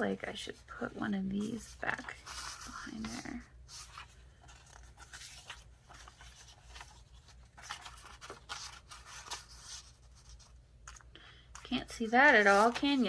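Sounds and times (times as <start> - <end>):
paper rustling and scraping: 0.4 - 13.0.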